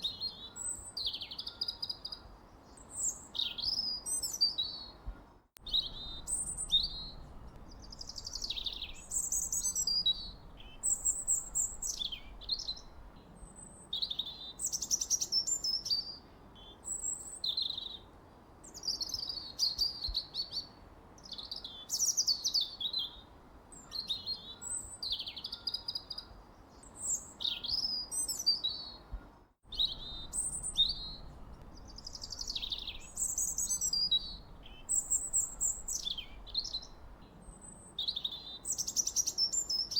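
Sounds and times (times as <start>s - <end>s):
faint low background hiss: 0.0s - 39.9s
bird chirping and warbling: 5.6s - 13.0s, 29.7s - 39.9s.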